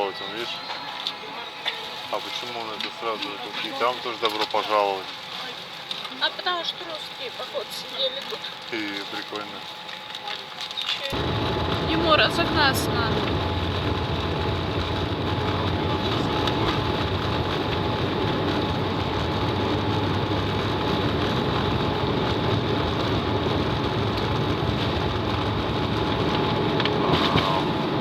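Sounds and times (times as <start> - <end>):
thin steady whine: 11.0 - 28.0
jet engines and airframe rumbling: 11.1 - 28.0.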